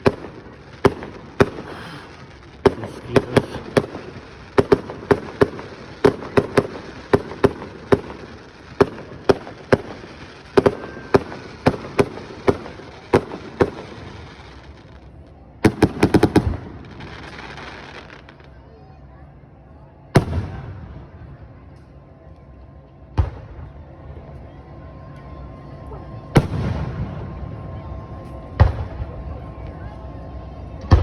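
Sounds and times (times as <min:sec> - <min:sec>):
firework hiss: 0:00.0 - 0:18.4
fireworks bursting with sharp bangs: 0:00.0 - 0:18.6, 0:20.1 - 0:21.3, 0:23.1 - 0:23.8, 0:26.2 - 0:29.6, 0:30.8 - 0:31.0.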